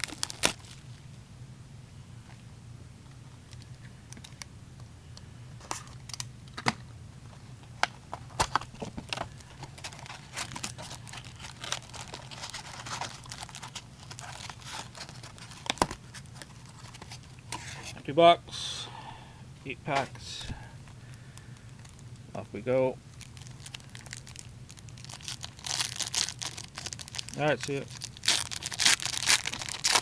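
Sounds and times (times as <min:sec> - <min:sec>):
plastic shrink wrap crinkling: 0:00.0 - 0:01.0, 0:08.4 - 0:17.4, 0:21.1 - 0:22.2, 0:23.1 - 0:30.0.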